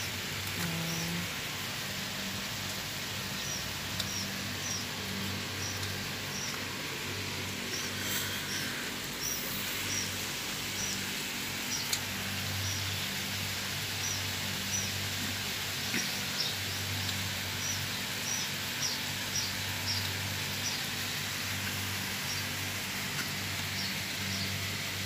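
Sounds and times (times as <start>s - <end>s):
low hum and hiss: 0.0s - 25.0s
small bird chirping: 5.6s - 6.7s, 7.6s - 11.0s, 15.9s - 21.0s.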